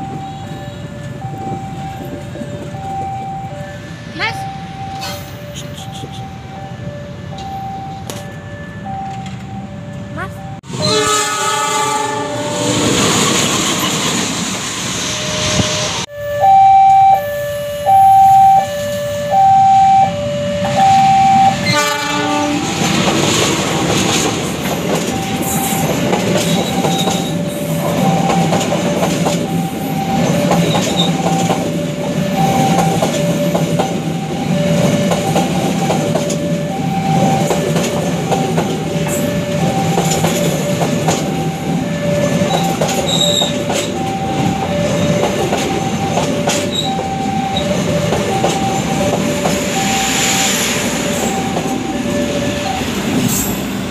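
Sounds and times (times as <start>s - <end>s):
two-tone warning alarm: 0.0s - 53.9s
train horn: 10.7s - 14.3s, 20.6s - 23.0s
train wheels rumbling and clattering: 11.8s - 16.1s, 21.4s - 53.9s.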